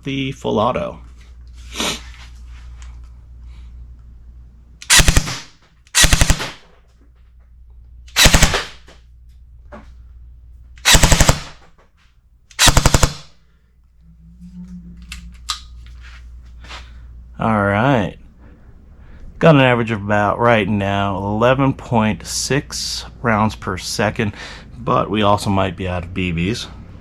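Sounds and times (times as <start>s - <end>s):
airsoft gun full-auto bursts: 4.8s - 6.6s, 8.2s - 8.8s, 10.8s - 11.6s, 12.6s - 13.4s.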